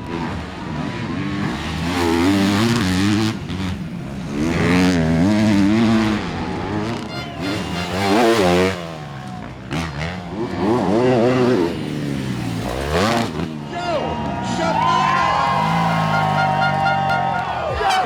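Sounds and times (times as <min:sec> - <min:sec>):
motocross bike engines revving: 0:00.0 - 0:18.0.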